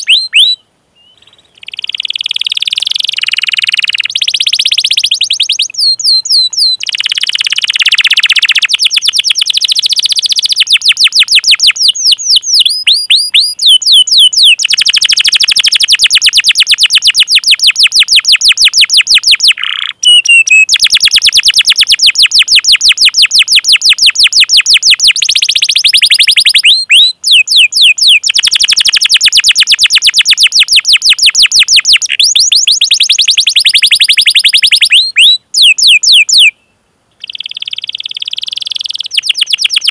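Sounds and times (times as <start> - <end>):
canary sweeping chirps: 0.0 - 36.5
canary trilling: 0.0 - 36.5, 37.2 - 39.9.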